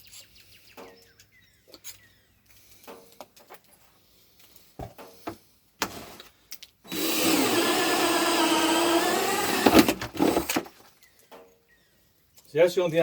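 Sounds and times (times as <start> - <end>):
cordless drill drilling: 6.9 - 10.7.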